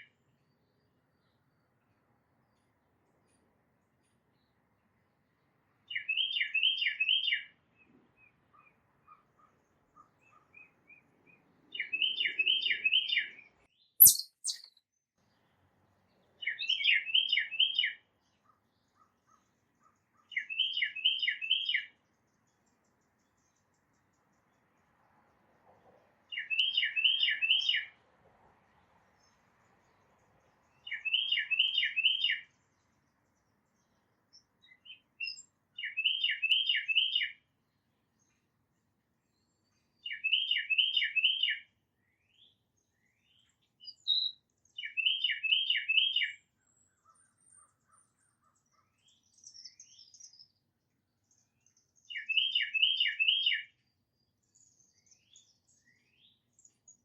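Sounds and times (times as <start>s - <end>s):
small birds chipping: 0.0s - 25.0s, 29.1s - 38.6s
titmouse whistled song: 14.0s - 14.7s.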